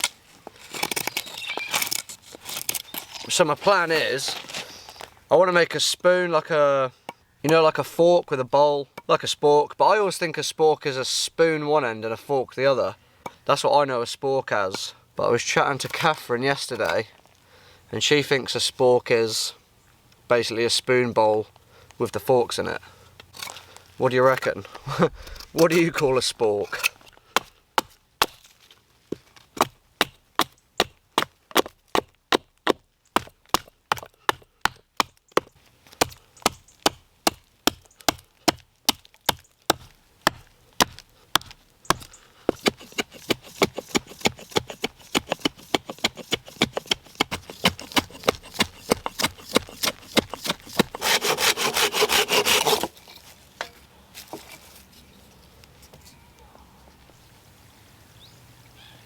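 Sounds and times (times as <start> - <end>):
knife shaving bark off wood: 39.7 - 53.3.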